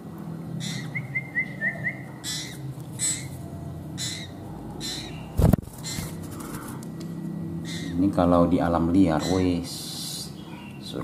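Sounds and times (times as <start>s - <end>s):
bird chirping: 0.5s - 6.7s, 7.6s - 8.1s, 9.1s - 11.0s.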